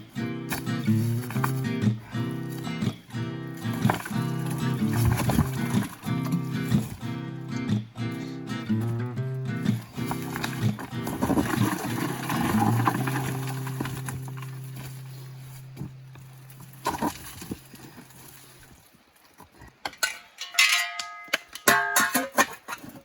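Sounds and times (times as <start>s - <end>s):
shovel scraping against rock: 0.5s - 7.1s, 9.7s - 15.6s.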